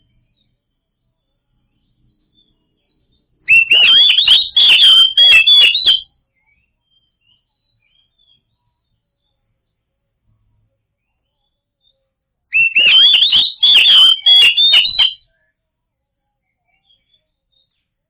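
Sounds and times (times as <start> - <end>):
bird singing whistled notes: 3.5 - 6.0, 12.6 - 15.2.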